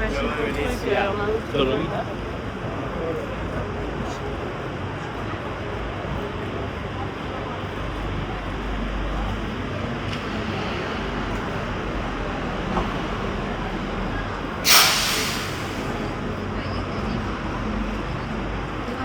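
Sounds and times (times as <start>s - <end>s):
street traffic: 0.0s - 19.0s
air brakes hissing: 14.6s - 16.2s.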